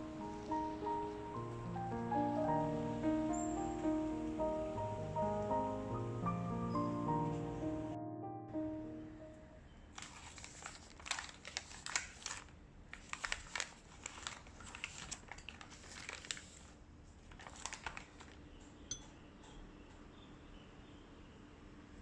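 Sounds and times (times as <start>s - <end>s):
crinkling and rustling: 9.9s - 18.9s.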